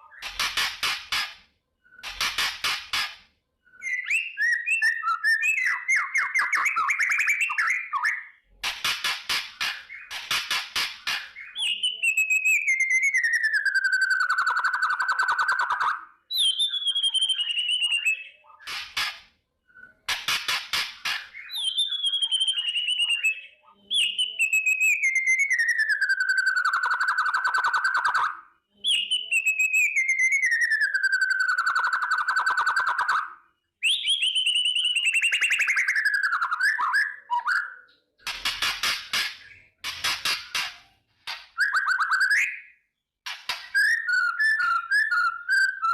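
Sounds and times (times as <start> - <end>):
bird buzzy rattling calls: 0.1 - 3.3, 38.2 - 41.8.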